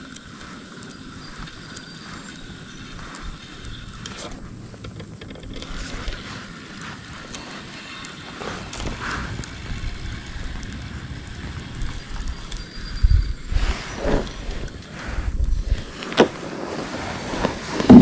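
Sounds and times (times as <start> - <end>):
fishing reel cranking: 0.0 - 15.8
wind gusting on microphone: 5.6 - 18.0.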